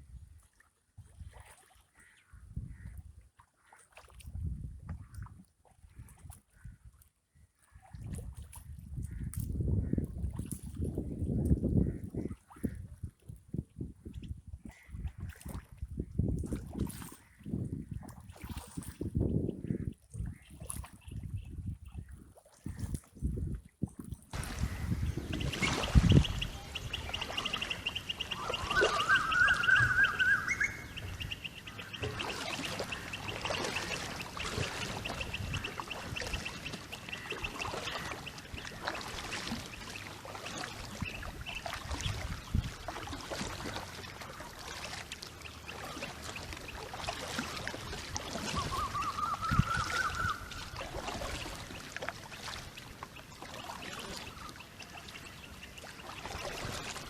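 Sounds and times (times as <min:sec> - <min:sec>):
river water splashing: 0:00.3 - 0:02.2, 0:03.4 - 0:04.4, 0:18.0 - 0:19.2, 0:24.3 - 0:57.0
bird rising call: 0:24.4 - 0:34.8, 0:48.4 - 0:50.7.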